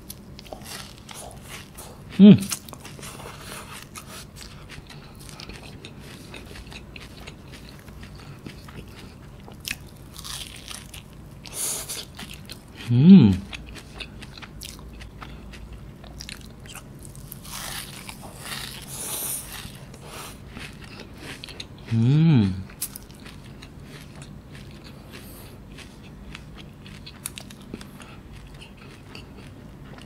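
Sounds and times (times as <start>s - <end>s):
pastry crunching: 0.0s - 11.2s, 13.4s - 21.7s
wet chewing: 0.0s - 30.0s
person humming mm: 2.2s - 2.6s, 12.8s - 13.6s, 21.9s - 22.7s.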